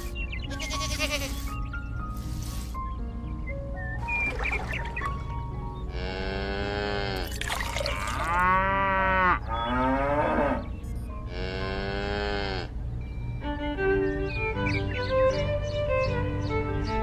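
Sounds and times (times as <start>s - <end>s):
cattle mooing: 5.9s - 7.2s, 8.1s - 10.7s, 11.3s - 12.7s.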